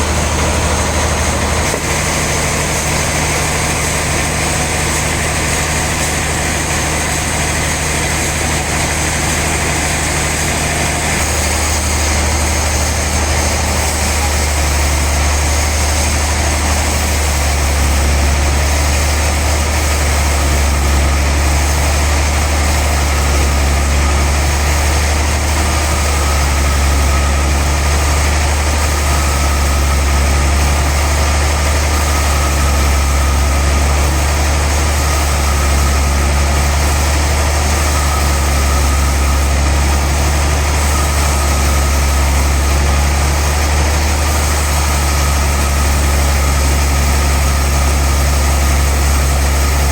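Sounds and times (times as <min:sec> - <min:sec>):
sawmill machinery humming: 0:00.0 - 0:49.9.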